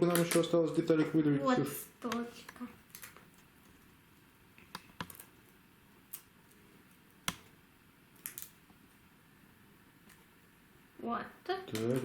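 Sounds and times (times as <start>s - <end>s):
plywood pieces clicking and snapping: 0.1s - 0.5s, 2.9s - 3.4s, 8.2s - 8.6s.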